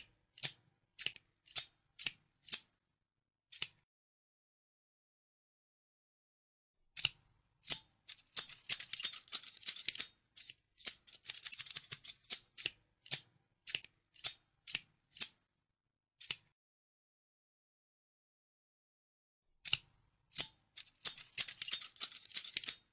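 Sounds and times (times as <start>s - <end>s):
scissors snipping: 0.4s - 2.7s, 3.5s - 3.8s, 7.0s - 15.4s, 16.2s - 16.5s, 19.6s - 22.9s.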